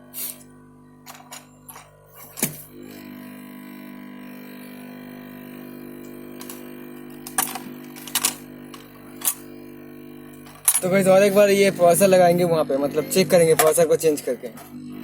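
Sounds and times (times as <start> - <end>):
steady low hum: 0.0 - 15.0
hardware clicks and knocks: 7.2 - 9.4, 10.4 - 10.9, 13.5 - 13.8.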